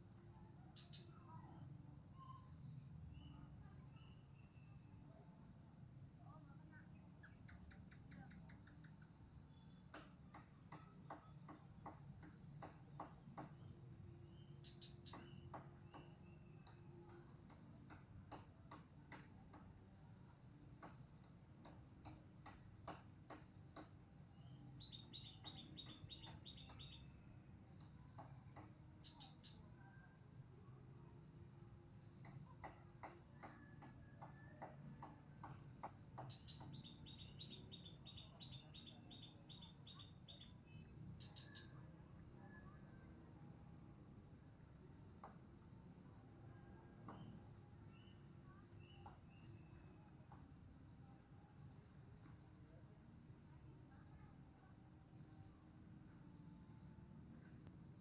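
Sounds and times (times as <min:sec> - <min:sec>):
faint high chirping: 0:00.3 - 0:05.2, 0:36.2 - 0:43.5, 0:44.3 - 0:50.4, 0:51.0 - 0:58.0.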